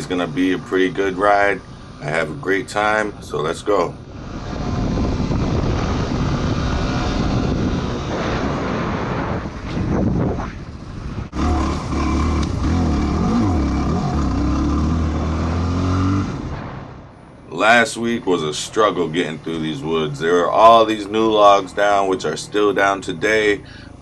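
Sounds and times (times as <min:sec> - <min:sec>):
off-road vehicle engine running: 0:11.3 - 0:16.7.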